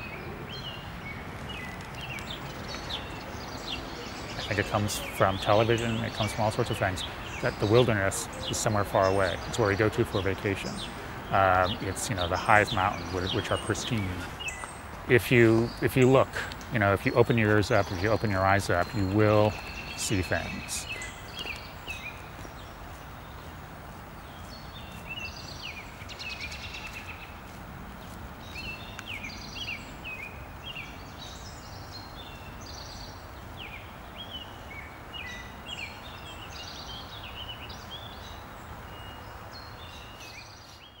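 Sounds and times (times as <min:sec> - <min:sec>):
songbirds chirping and singing: 0:00.0 - 0:41.0.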